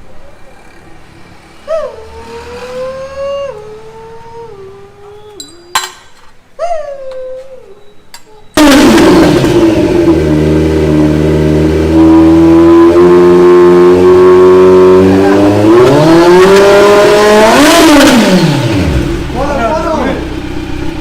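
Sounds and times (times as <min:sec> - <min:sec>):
motorcycle engine starting and revving: 0:08.6 - 0:21.0.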